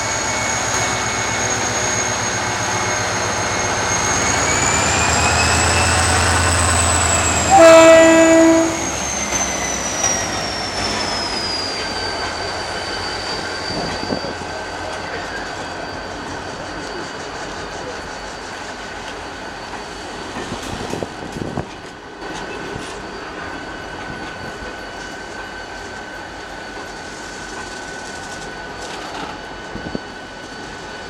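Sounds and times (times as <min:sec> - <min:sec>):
locomotive engine under load: 0:00.0 - 0:07.6
train horn blast: 0:07.2 - 0:09.0.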